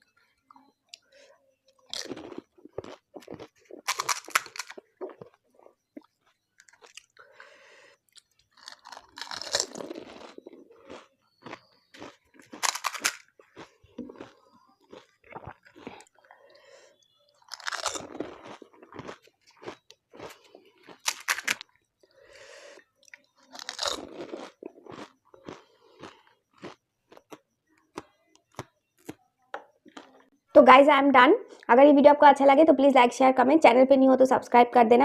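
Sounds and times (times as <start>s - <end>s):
wet chewing: 0.9s - 30.4s
loud crunch of biting: 1.9s - 5.4s, 6.0s - 7.2s, 8.1s - 16.2s, 17.4s - 21.7s, 23.0s - 29.2s.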